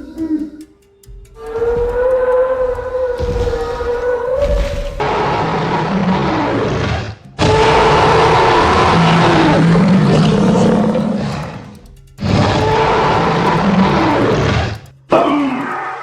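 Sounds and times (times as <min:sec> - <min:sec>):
dinosaur roars: 0:04.0 - 0:14.8.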